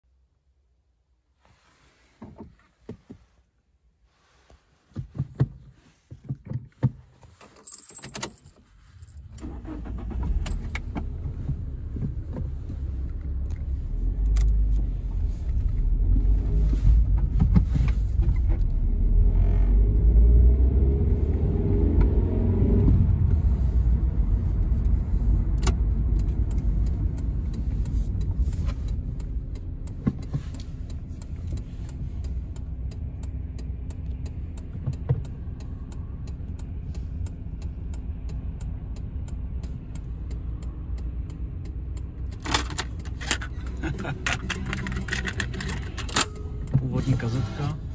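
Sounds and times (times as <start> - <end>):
car engine starting and running: 0.2 - 47.9
keys jangling: 7.4 - 9.4.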